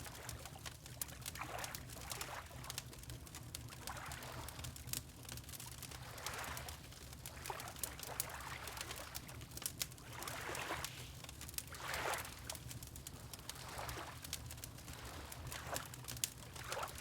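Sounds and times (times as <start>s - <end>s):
log fire crackling: 0.1s - 17.0s
water lapping: 10.1s - 11.0s, 11.7s - 12.4s, 13.6s - 14.2s.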